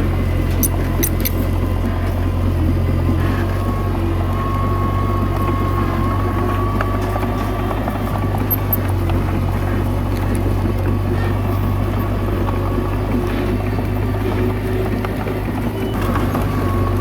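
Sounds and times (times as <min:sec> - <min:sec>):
bulldozer diesel engine running: 0:00.0 - 0:17.0
thin steady whine: 0:00.0 - 0:17.0
sharp metallic clicks: 0:00.5 - 0:01.6, 0:08.4 - 0:08.9.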